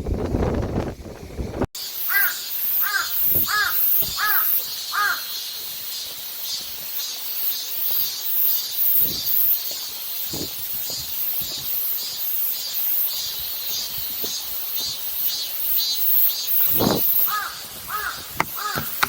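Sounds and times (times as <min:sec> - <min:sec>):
wind buffeting microphone: 0:00.0 - 0:01.7, 0:09.0 - 0:09.5, 0:10.3 - 0:11.8, 0:16.6 - 0:19.0
crow cawing: 0:02.1 - 0:05.4, 0:17.3 - 0:19.0.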